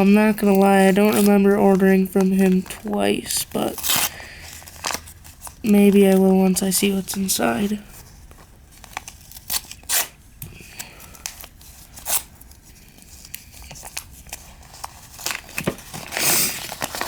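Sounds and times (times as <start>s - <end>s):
packaging tearing and crinkling: 3.7s - 5.7s, 8.3s - 10.2s, 11.2s - 17.0s.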